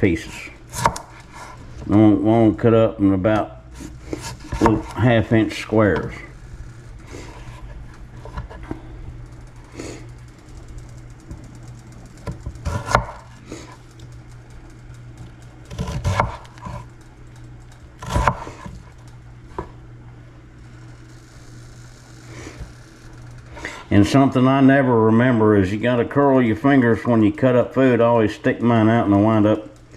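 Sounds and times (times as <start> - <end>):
steady low hum: 0.0 - 29.9
knife chopping on cutting board: 0.7 - 1.5, 12.6 - 13.2, 15.7 - 16.8, 18.0 - 18.7.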